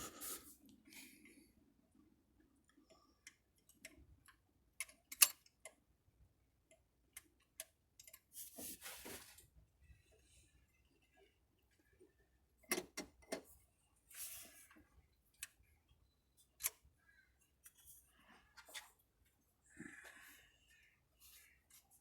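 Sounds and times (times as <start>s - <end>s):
small parts and tools clicking: 2.7s - 5.8s, 6.7s - 8.3s, 16.5s - 16.8s.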